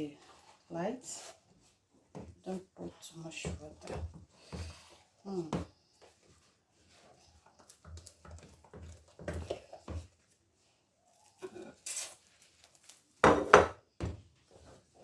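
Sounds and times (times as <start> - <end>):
dishes knocking and scraping: 13.2 - 14.2.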